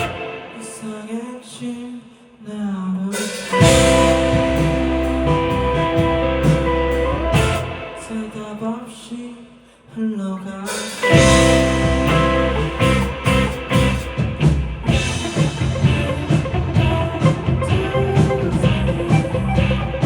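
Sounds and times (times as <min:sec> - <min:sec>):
live rock band: 0:00.0 - 0:01.2, 0:03.1 - 0:08.6, 0:10.7 - 0:20.0.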